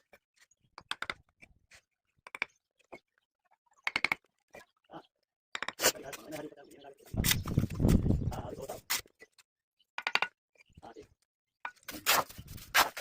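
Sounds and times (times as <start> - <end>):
sharp knocks and clicks: 0.8 - 1.4, 2.2 - 3.0, 3.8 - 4.3, 5.6 - 5.8, 10.0 - 10.4.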